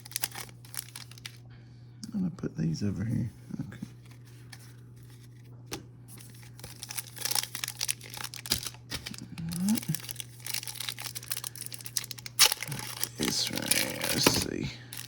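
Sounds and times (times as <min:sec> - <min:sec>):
wrapper crinkling and rustling: 0:00.0 - 0:01.4, 0:06.1 - 0:15.0
faint low hum: 0:00.0 - 0:15.0.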